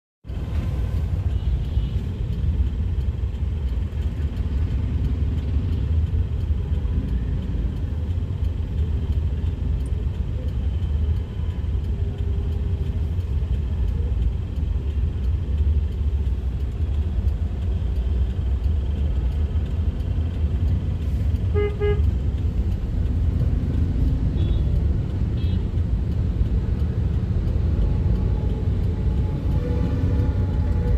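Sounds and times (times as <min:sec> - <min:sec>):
road traffic rumble: 0:00.2 - 0:30.9
car horn toot: 0:21.5 - 0:22.1.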